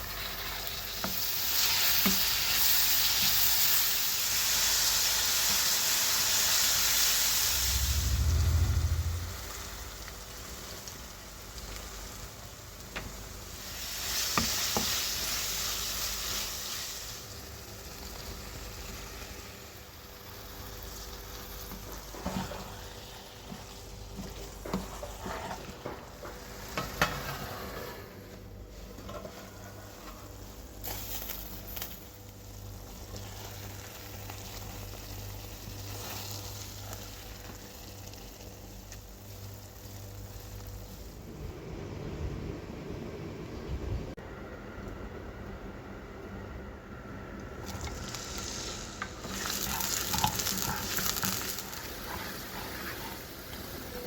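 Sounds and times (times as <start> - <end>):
vegetables sizzling in hot oil: 0.0 - 7.7, 9.5 - 25.7, 28.7 - 41.1, 47.6 - 54.0.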